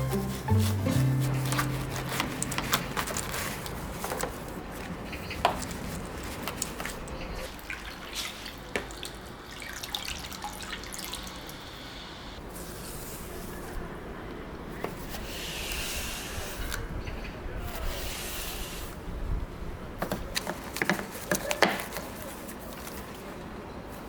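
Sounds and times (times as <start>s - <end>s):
water dripping and splashing: 4.8s - 11.8s.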